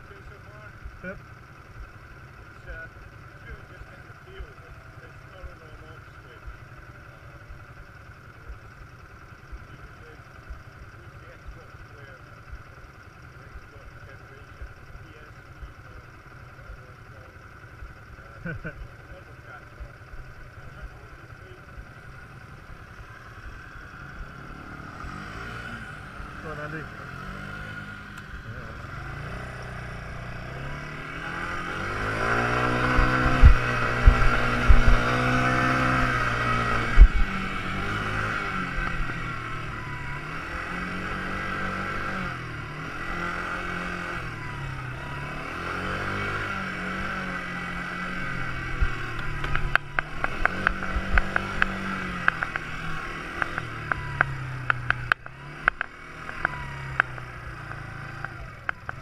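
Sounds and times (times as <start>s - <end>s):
quad bike engine revving: 16.7s - 59.0s
sharp clicks and knocks: 32.8s - 35.1s, 48.8s - 59.0s.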